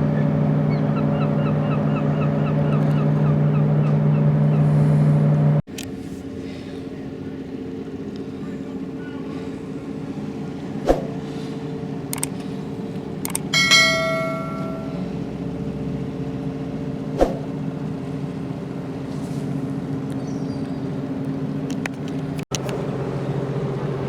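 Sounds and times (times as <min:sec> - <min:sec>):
low ship engine drone: 0:00.0 - 0:24.0
sharp knocks: 0:13.6 - 0:15.0
metallic strike ringing: 0:13.6 - 0:15.1.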